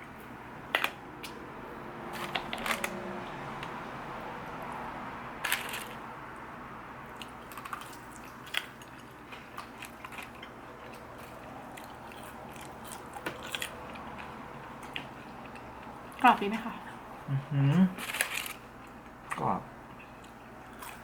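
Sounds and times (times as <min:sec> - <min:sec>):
chewing crispy food: 0:05.4 - 0:06.0, 0:07.0 - 0:16.3, 0:17.8 - 0:21.0.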